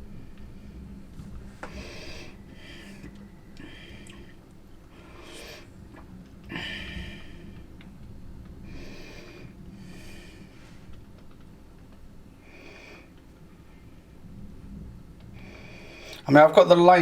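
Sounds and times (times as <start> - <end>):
low steady hum: 0.0 - 17.0
person breathing through nose: 1.7 - 5.7.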